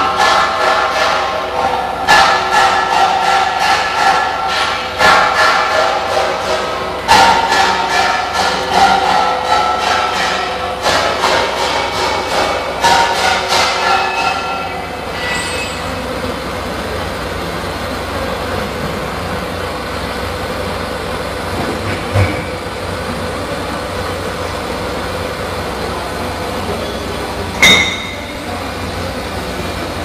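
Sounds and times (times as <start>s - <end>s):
welding machine humming and hissing: 0.0s - 30.0s
sharp metal clank: 2.0s - 16.1s, 27.6s - 28.5s.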